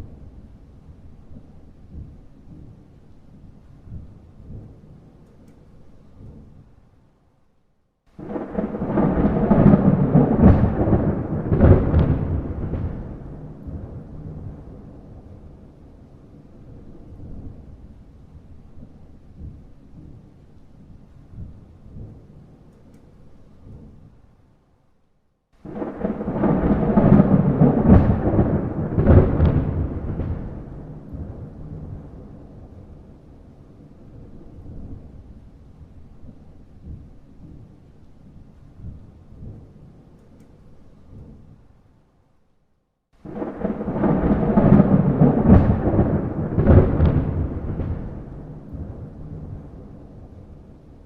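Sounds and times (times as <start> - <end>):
thunder rumbling: 0.0 - 6.9, 8.2 - 24.3, 25.6 - 41.8, 43.2 - 51.0
thunder cracks: 8.2 - 15.5, 25.6 - 33.4, 43.2 - 51.0.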